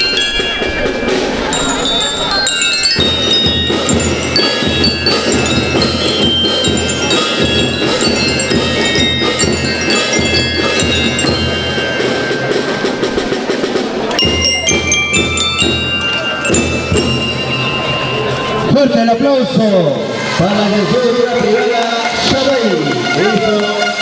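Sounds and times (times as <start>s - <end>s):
steady drum beat: 0.0s - 18.8s
bell lyres playing a tune: 0.0s - 24.0s.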